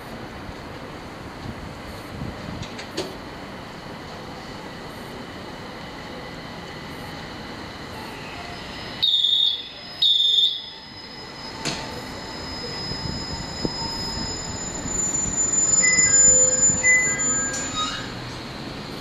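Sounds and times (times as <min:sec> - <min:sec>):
train rumble: 0:00.0 - 0:19.0
loud high beeps: 0:09.0 - 0:17.8.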